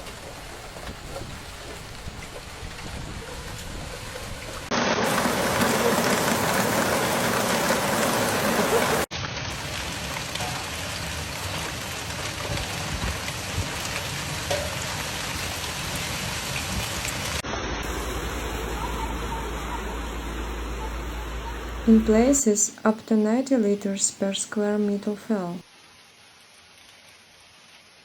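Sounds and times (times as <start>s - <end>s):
heavy rain pouring: 0.0s - 22.4s.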